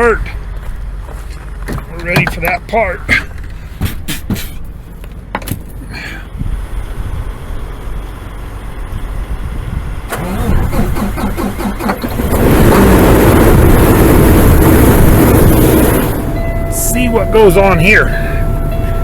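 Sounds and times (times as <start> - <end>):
diesel engine running: 0.0 - 19.0
starter motor cranking: 10.1 - 16.1.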